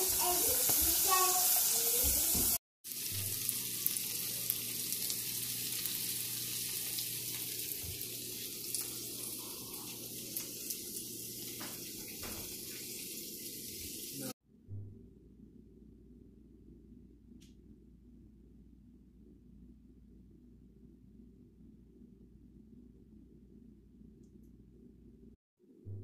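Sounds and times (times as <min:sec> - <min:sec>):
vegetables sizzling in a skillet: 0:00.0 - 0:14.3.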